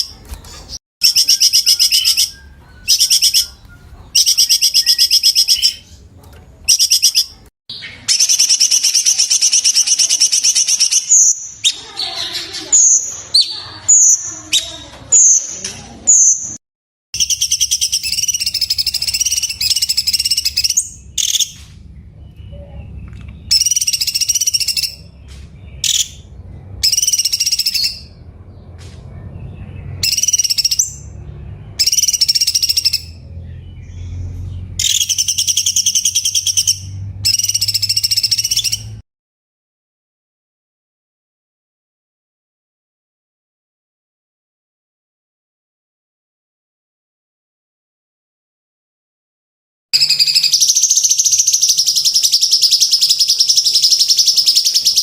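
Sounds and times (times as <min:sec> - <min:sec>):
bird trilled calls: 0:00.0 - 0:15.4, 0:17.2 - 0:21.6, 0:22.3 - 0:25.1, 0:25.7 - 0:28.2, 0:30.0 - 0:31.2, 0:31.8 - 0:34.2, 0:34.8 - 0:39.0, 0:50.0 - 0:55.0.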